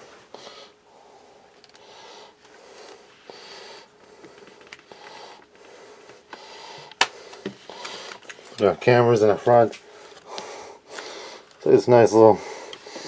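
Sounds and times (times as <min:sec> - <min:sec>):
close breathing: 0:00.0 - 0:08.6, 0:09.8 - 0:11.6, 0:12.3 - 0:13.0.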